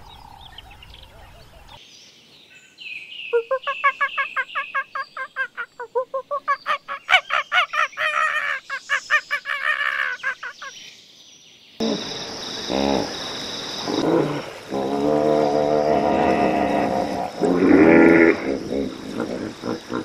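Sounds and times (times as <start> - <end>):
low drawn-out animal call: 11.8 - 13.2, 13.8 - 20.0
steady hiss: 11.8 - 20.0.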